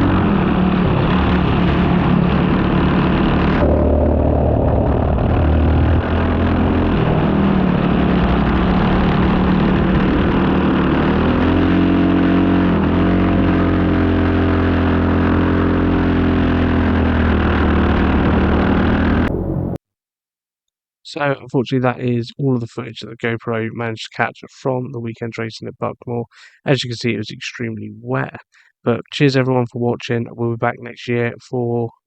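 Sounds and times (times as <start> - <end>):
kart engine running under load: 0.0 - 19.3.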